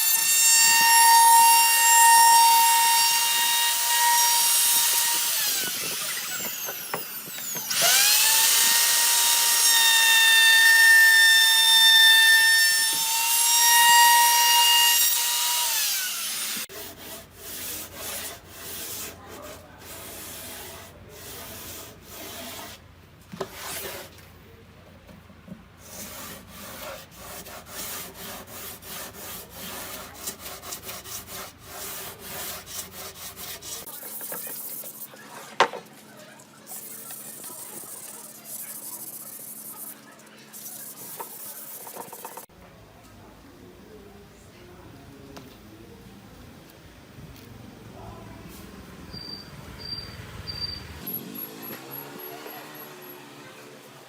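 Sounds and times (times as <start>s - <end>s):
power tool motor whining: 3.2s - 9.5s
rubbing and scraping strokes: 16.6s - 24.2s, 25.8s - 35.6s, 36.6s - 42.5s.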